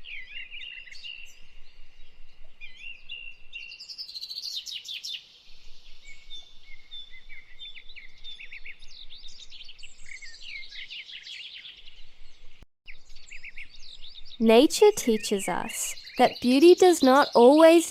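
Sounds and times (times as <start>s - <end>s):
songbirds chirping and trilling: 0.0s - 17.9s.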